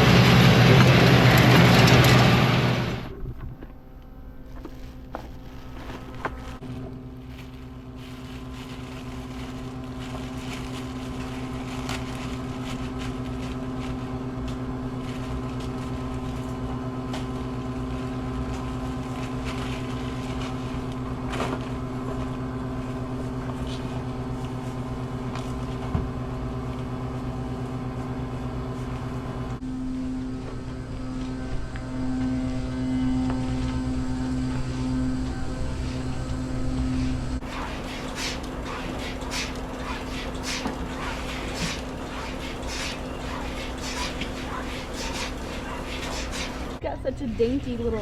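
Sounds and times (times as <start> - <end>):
tractor engine running: 0.0 - 7.6, 32.5 - 46.8.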